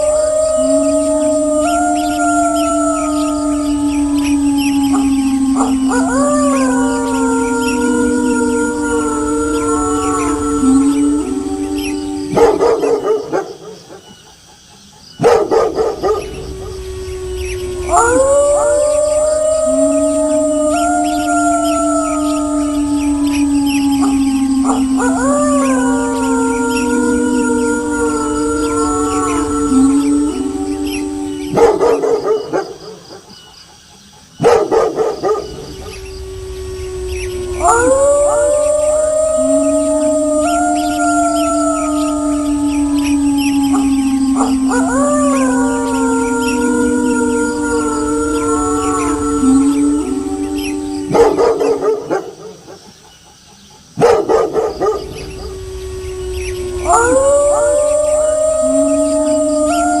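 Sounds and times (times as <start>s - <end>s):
wolves howling in chorus: 0.0s - 60.0s
dog barking: 15.2s - 16.2s, 34.4s - 35.5s, 54.0s - 55.1s.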